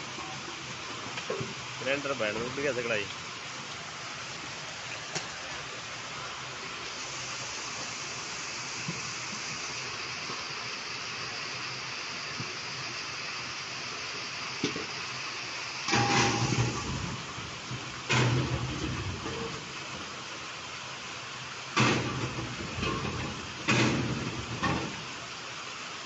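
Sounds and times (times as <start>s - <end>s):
heavy rain on flooded ground: 0.0s - 26.0s.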